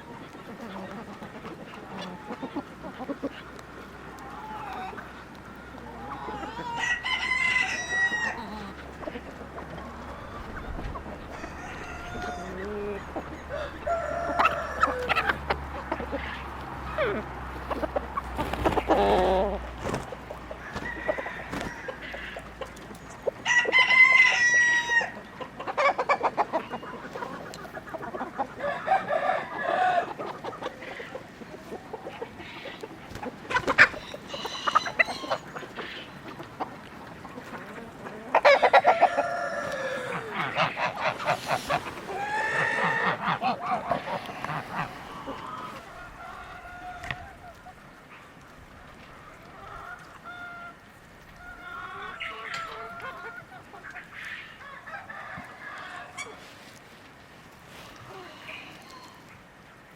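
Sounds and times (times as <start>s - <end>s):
chickens clucking: 0.0s - 59.9s
rooster crowing: 6.3s - 8.7s, 11.2s - 15.4s, 20.6s - 22.4s, 23.4s - 25.2s, 38.7s - 40.4s.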